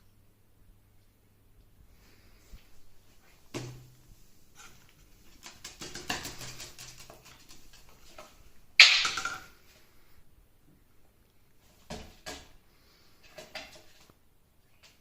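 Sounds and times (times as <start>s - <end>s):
parrot claws and beak tapping: 4.6s - 9.5s.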